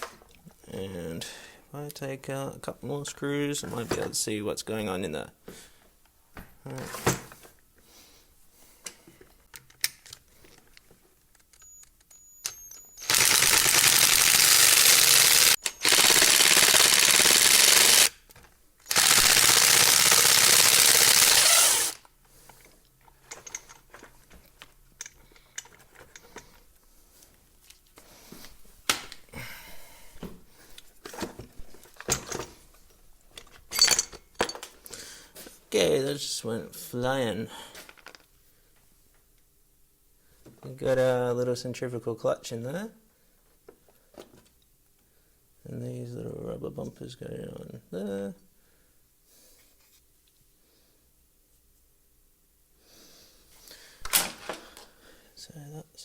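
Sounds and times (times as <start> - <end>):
faint clicks and handling noise: 8.8 - 12.8, 22.0 - 29.3, 37.8 - 39.5
impact driver hammering screws: 12.5 - 18.2, 18.9 - 22.0.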